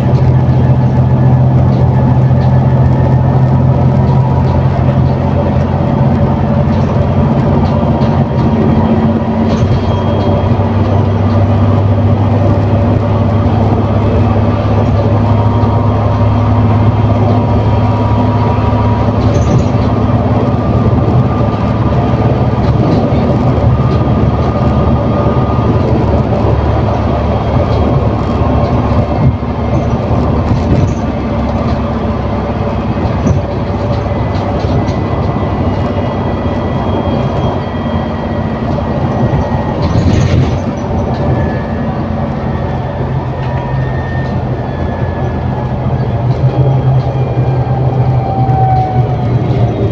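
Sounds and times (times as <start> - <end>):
bus body rattles and clicks: 0.0 - 49.9
bus engine drone from inside: 0.0 - 49.9.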